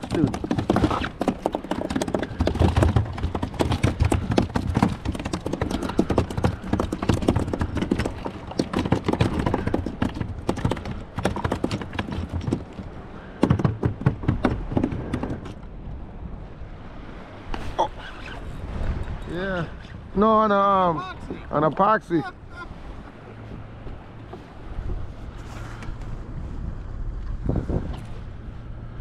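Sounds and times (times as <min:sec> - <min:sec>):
fish thrashing against plastic kayak: 0:00.0 - 0:15.6.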